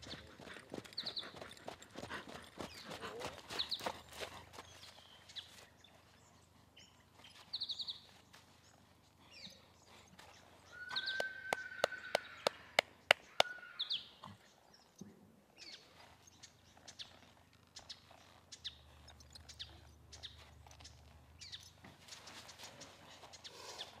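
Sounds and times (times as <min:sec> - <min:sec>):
birds chirping and whistling: 0:10.7 - 0:12.4.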